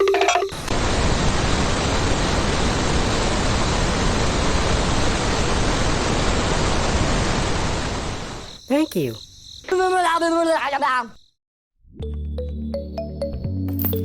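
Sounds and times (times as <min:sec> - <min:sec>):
steady rushing hiss: 0:00.5 - 0:08.5.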